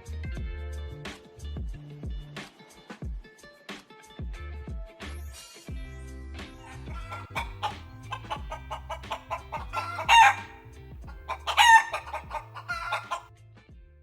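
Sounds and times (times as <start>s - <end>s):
background music with plucked notes: 0.0s - 14.0s
chicken calls: 6.6s - 13.3s.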